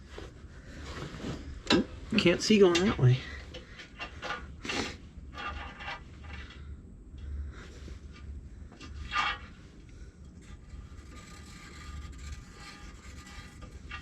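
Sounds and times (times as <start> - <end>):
faint low hum: 0.0 - 14.0
scratchy drawing on sheet metal: 10.4 - 14.0.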